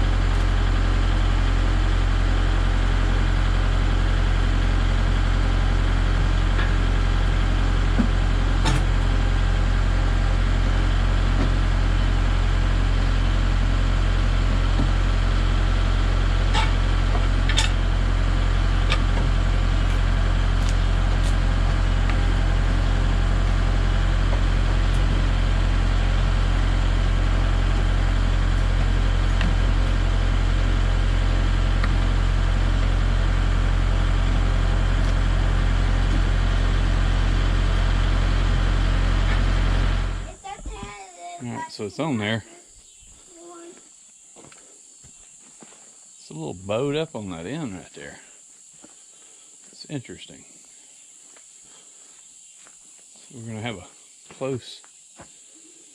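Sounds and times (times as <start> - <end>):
engine idling: 0.0 - 42.5.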